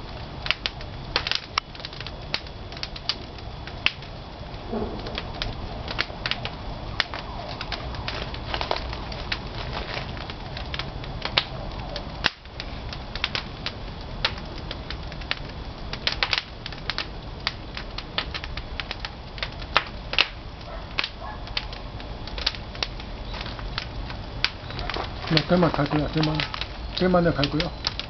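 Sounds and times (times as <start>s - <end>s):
firewood crackling and popping: 0.0s - 28.0s
low rumble: 2.0s - 19.3s.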